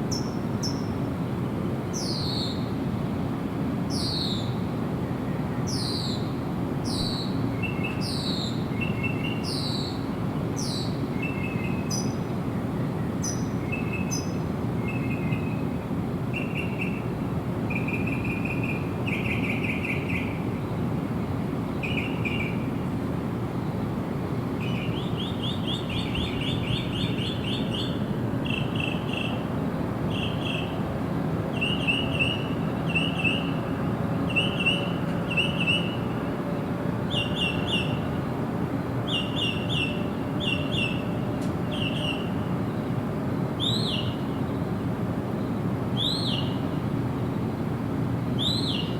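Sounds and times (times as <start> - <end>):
bird chirps and trills: 46.0 - 46.6, 48.4 - 48.9.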